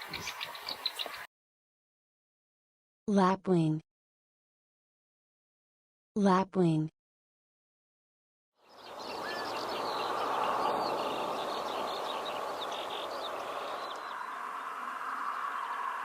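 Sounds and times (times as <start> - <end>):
faint bird calls: 0.0 - 1.3, 8.7 - 16.0.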